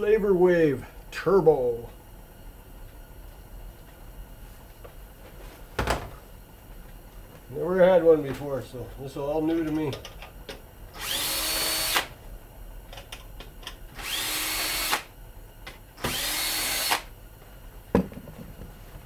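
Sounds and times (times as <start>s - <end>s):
power drill whining: 10.9s - 12.1s, 13.9s - 15.1s, 16.0s - 17.1s.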